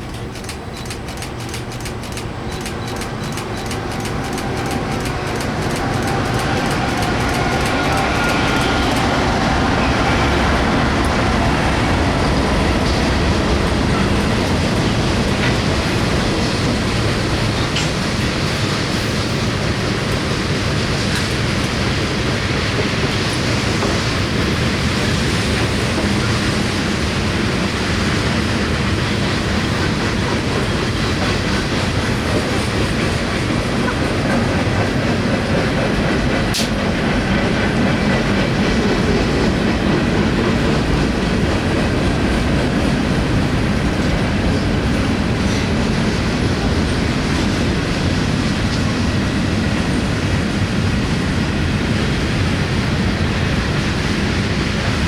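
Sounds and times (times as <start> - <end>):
sharp click: 0.0 - 9.1
train wheels rumbling on rails: 0.0 - 55.0.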